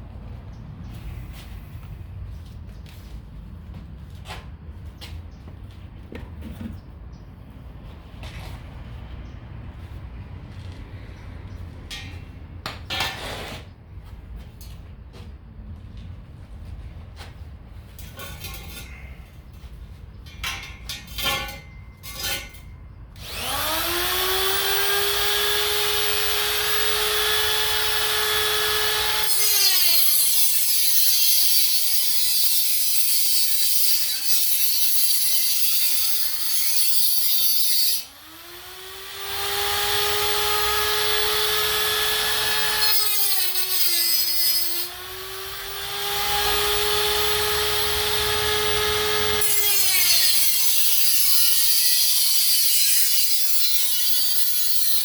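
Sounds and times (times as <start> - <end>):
grinder grinding metal: 23.2 - 55.0.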